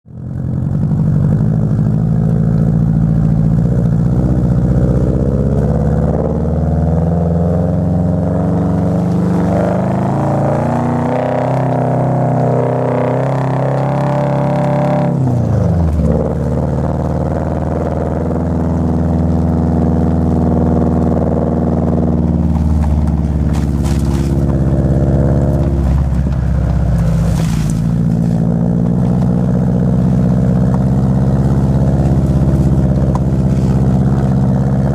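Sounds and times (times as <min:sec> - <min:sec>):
car engine accelerating: 0:00.1 - 0:34.9.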